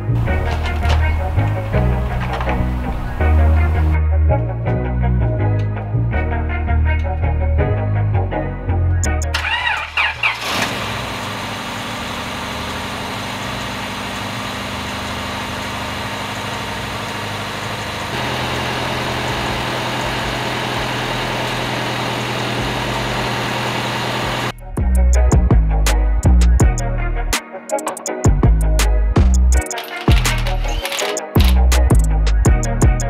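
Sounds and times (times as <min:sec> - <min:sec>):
car engine idling: 0:00.0 - 0:04.0, 0:09.2 - 0:25.1
engine cranking on starter: 0:00.1 - 0:03.9, 0:09.1 - 0:24.5, 0:29.5 - 0:32.1.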